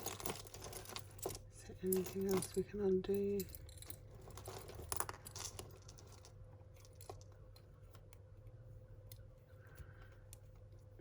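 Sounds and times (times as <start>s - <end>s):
jewellery clicking and clinking: 0.0s - 7.6s
faint low hum: 0.0s - 11.0s.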